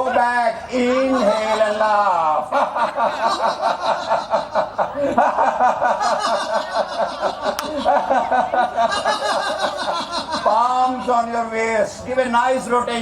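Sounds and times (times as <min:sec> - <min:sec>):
people laughing rhythmically: 0:00.0 - 0:10.7.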